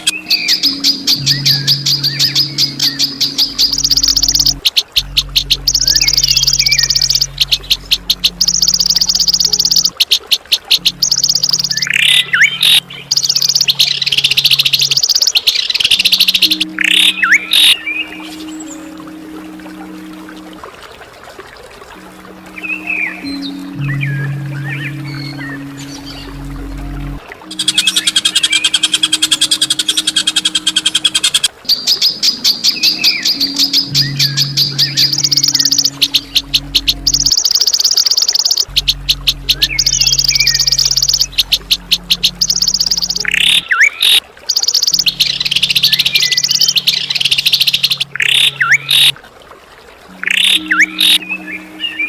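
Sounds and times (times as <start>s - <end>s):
low steady hum: 0.0s - 52.0s
songbird harsh rattling calls: 27.5s - 49.1s.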